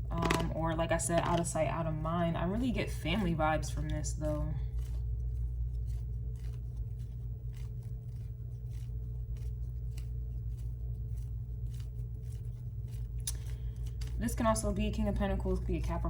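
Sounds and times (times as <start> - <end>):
low hum: 0.0 - 16.0
cards clicking and rustling: 5.8 - 14.4.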